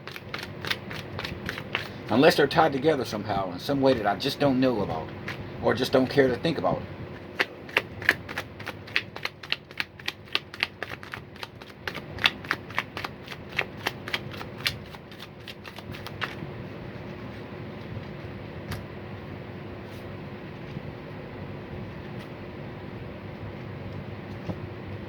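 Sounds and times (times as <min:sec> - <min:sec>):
cards being shuffled: 0:00.0 - 0:02.4, 0:07.2 - 0:16.4.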